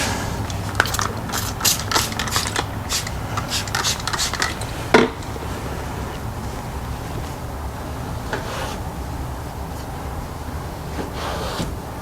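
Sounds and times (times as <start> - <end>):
scuffs and clicks of hand cleaning: 0.0 - 5.7.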